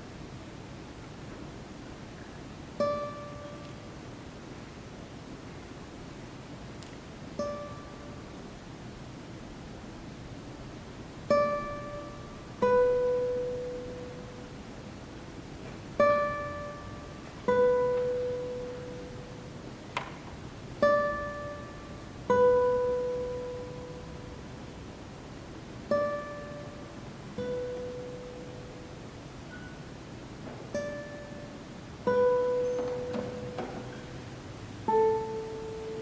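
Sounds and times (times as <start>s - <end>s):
classical guitars plucking: 2.2s - 4.1s, 6.7s - 8.4s, 11.2s - 36.0s.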